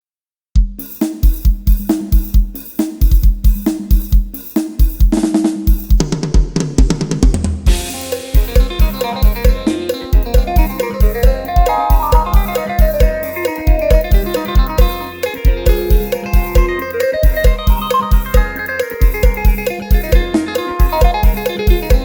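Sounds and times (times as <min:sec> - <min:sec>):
drum kit beat: 0:00.6 - 0:22.0
band instruments playing: 0:07.7 - 0:22.0
cymbal crash: 0:07.7 - 0:22.0.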